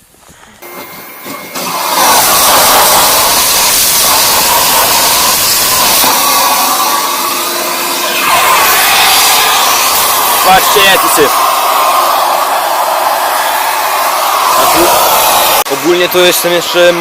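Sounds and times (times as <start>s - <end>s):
vacuum cleaner motor running: 0.6s - 17.0s.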